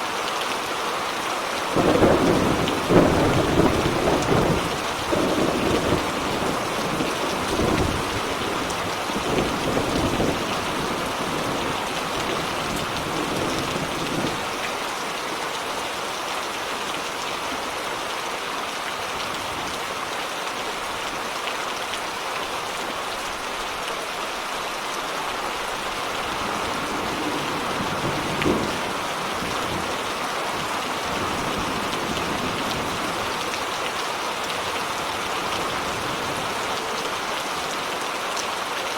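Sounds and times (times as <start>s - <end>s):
steady rain falling: 0.0s - 38.9s
thunder rumbling: 1.8s - 14.5s, 25.8s - 33.4s.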